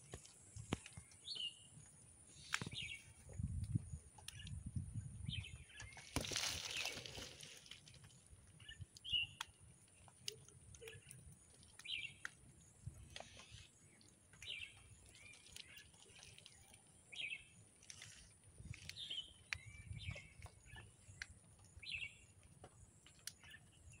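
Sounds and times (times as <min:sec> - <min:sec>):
birds chirping: 0:05.2 - 0:18.2.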